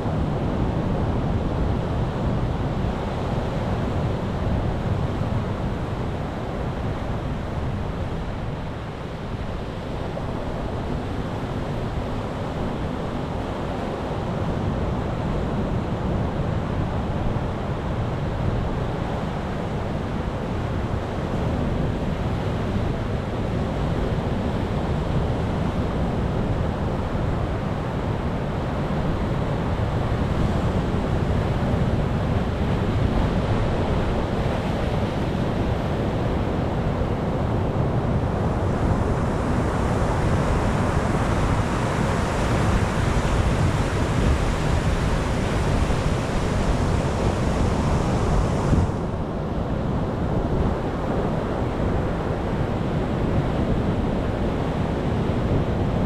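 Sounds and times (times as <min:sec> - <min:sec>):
surf rumbling: 0:26.8 - 0:56.0.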